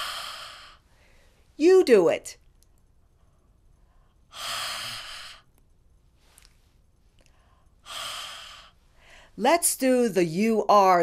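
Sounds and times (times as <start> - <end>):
woman breathing out h sound: 0.0 - 1.4, 4.3 - 5.5, 7.3 - 9.4.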